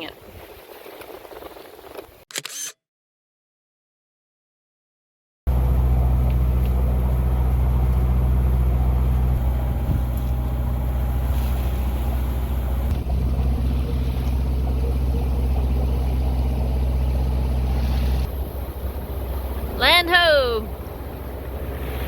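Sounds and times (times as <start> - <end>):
boat engine droning: 5.5 - 22.0.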